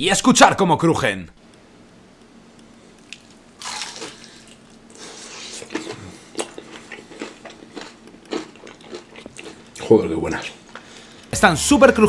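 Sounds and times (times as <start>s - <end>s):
crunchy chewing: 3.0s - 11.1s.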